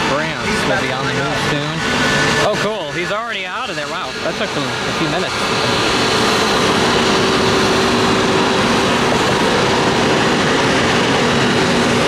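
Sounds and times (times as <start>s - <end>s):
jet engines roaring with whine: 0.0s - 12.0s.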